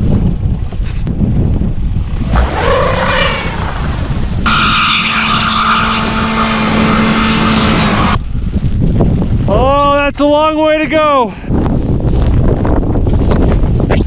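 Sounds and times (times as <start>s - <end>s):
wind noise on microphone: 0.0s - 14.0s
car engine revving: 2.2s - 8.2s.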